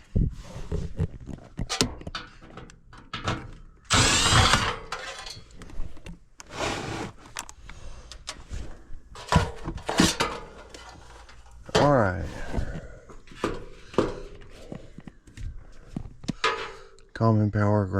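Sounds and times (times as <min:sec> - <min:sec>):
metal tools clicking and knocking: 0:01.6 - 0:05.6
cordless power driver: 0:03.9 - 0:05.3.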